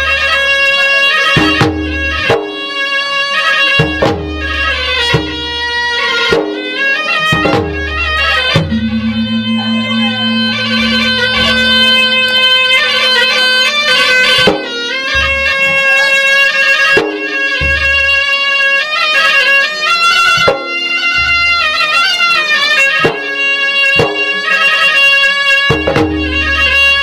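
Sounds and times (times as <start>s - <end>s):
shrill reed pipe melody: 6.0s - 23.9s.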